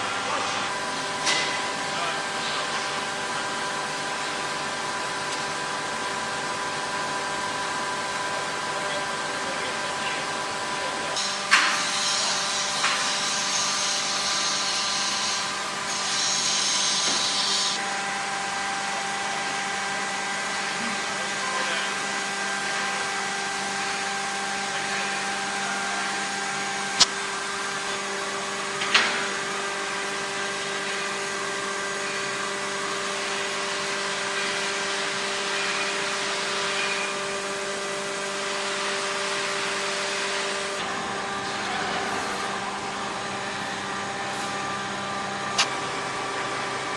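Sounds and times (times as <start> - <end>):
machine whining over hiss: 11.2 - 17.8.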